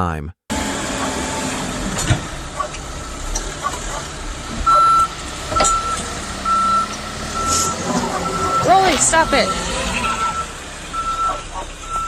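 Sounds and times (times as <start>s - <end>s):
vehicle noise: 0.5s - 12.0s
electronic beeper tone: 4.7s - 12.0s.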